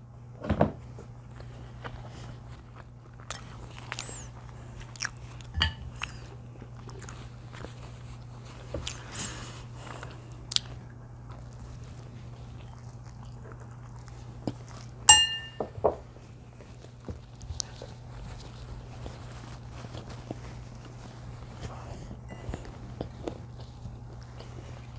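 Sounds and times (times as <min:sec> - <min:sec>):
low hum: 0:00.0 - 0:24.9
person chewing food: 0:01.1 - 0:24.9
sharp ringing tone: 0:15.1 - 0:15.7.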